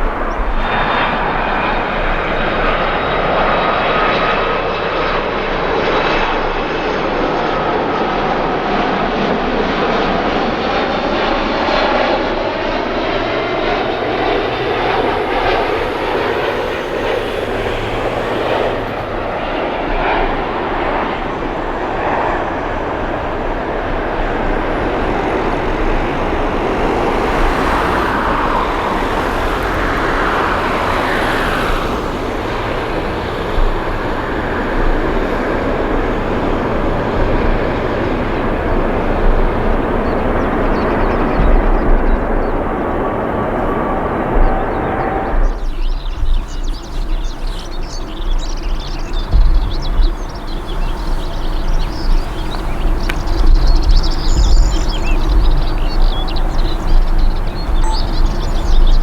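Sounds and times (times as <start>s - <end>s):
jet engines passing: 0.0s - 59.0s.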